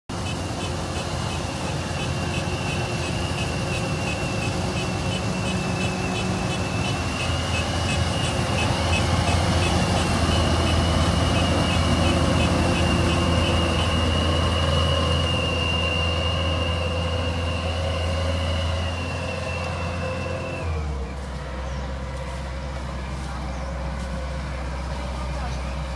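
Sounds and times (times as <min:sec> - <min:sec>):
engine running: 0:00.0 - 0:25.9
high-pitched electronic beeping: 0:00.1 - 0:14.3.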